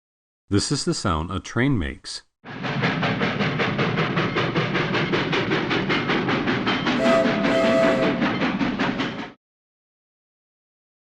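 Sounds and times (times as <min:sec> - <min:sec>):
train wheels clickety-clack: 0:02.5 - 0:09.4
train horn blasts: 0:07.0 - 0:08.4.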